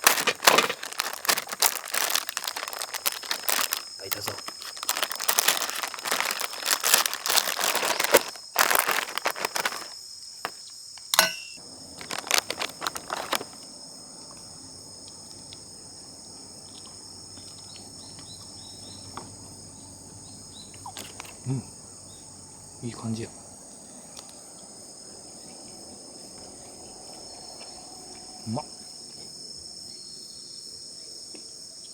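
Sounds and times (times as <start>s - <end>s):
package crinkling and rustling: 0.0s - 10.6s, 11.9s - 13.7s, 20.9s - 21.4s
crickets and insects chirping: 0.0s - 31.9s.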